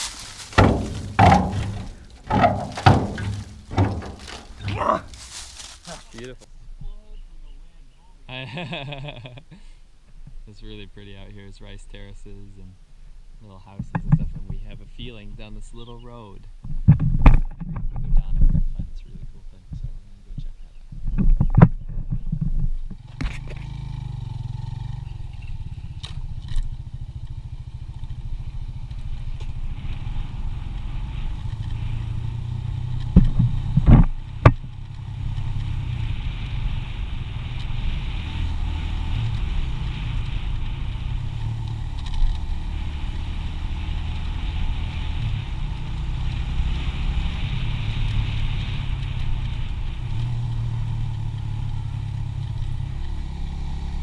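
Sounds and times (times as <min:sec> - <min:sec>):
small motorcycle engine: 0:00.0 - 0:04.4, 0:23.0 - 0:54.0
loud knocks: 0:00.0 - 0:04.8.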